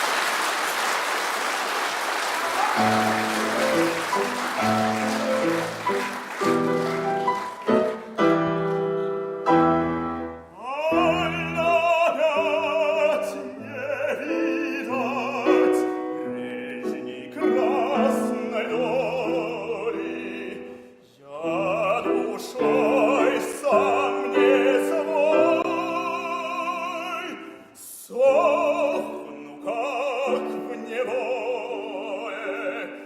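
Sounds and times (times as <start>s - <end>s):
piano accompaniment: 2.5s - 33.0s
operatic voice singing: 10.6s - 33.0s.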